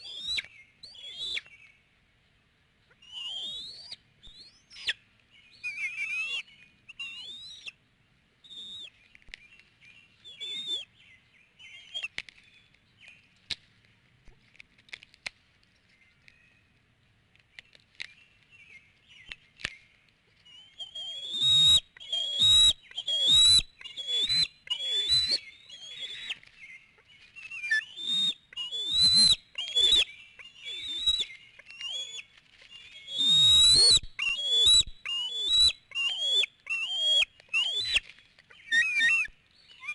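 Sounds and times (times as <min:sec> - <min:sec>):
eagles whistled chirping: 0:00.0 - 0:01.6, 0:03.0 - 0:07.8, 0:08.4 - 0:09.0, 0:10.2 - 0:10.9, 0:11.6 - 0:12.2, 0:20.5 - 0:39.9.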